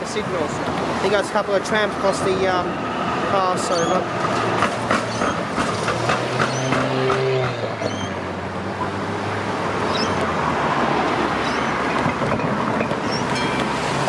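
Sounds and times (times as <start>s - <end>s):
wheel and road rumble: 0.0s - 14.0s
short high squeaks: 3.6s - 4.1s, 5.0s - 5.6s, 6.4s - 7.0s, 7.7s - 8.2s, 9.8s - 10.3s, 11.4s - 12.0s, 13.0s - 13.6s.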